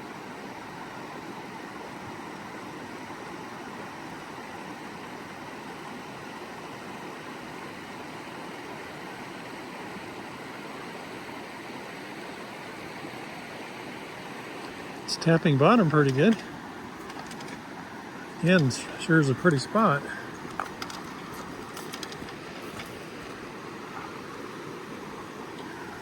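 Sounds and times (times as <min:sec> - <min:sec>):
creek flowing over rocks: 0:12.5 - 0:26.0.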